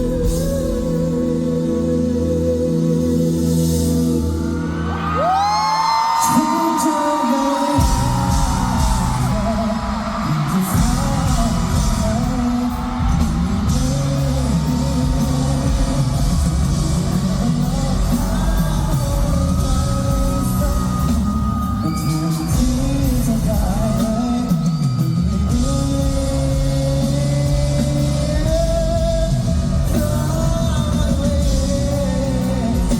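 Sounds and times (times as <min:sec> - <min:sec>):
heavy bass and drums: 0:00.0 - 0:04.5, 0:07.8 - 0:32.9
person singing lead vocal: 0:00.0 - 0:32.9
audience shouting: 0:04.7 - 0:19.1.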